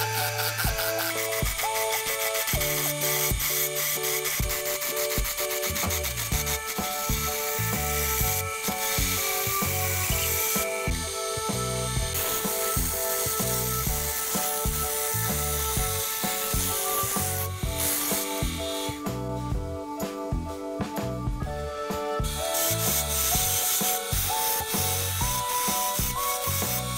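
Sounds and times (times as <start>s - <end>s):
lathe tool scraping wood: 0.0s - 19.0s, 22.3s - 26.9s
background music: 0.0s - 26.9s.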